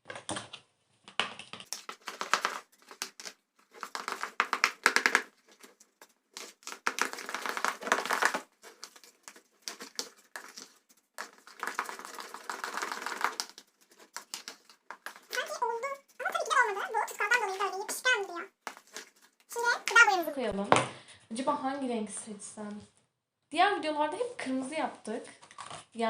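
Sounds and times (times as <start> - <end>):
plastic container shaken clattering: 1.6 - 20.3.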